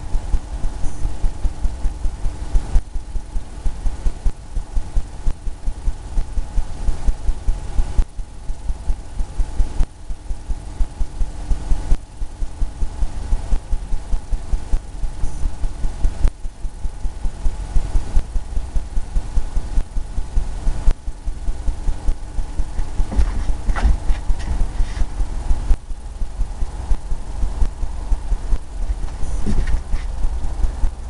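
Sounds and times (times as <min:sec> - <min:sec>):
faint steady hum: 0:00.0 - 0:31.0
brush dabbing on canvas: 0:22.7 - 0:25.2, 0:28.8 - 0:30.3.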